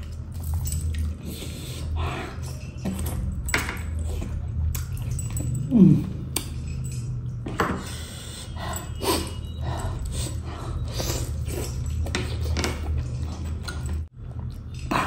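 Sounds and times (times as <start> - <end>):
man chewing and smacking: 10.8 - 15.0.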